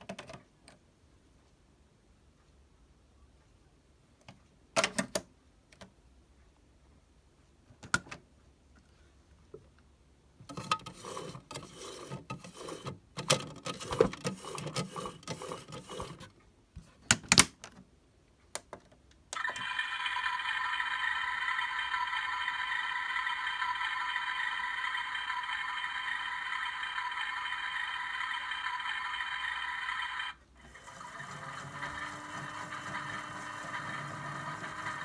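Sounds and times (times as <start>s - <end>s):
toy washing machine clicking: 10.5s - 16.3s, 19.4s - 35.0s.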